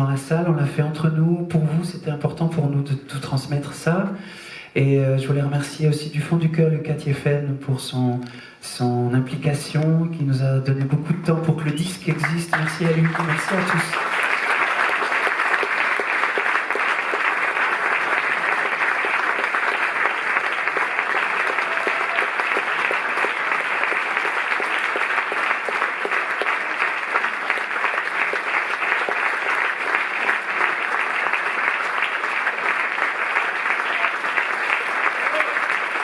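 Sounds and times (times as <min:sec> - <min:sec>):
audience applauding: 0:11.6 - 0:36.0.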